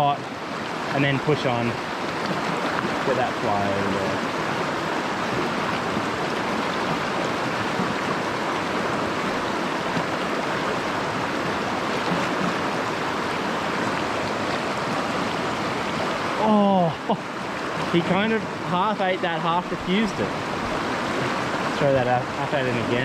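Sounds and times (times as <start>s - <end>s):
stream babbling over rocks: 0.0s - 23.0s.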